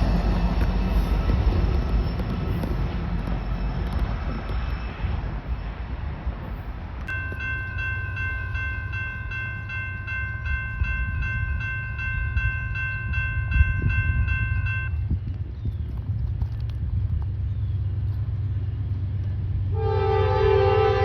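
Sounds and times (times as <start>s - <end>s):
crossing bell ringing: 7.1s - 15.1s.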